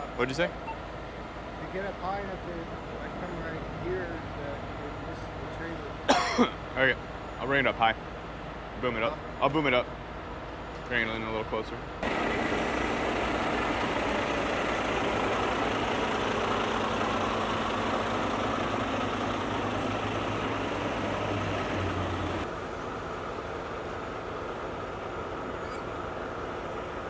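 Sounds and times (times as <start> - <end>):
diesel engine running at raised revs: 12.0 - 27.0.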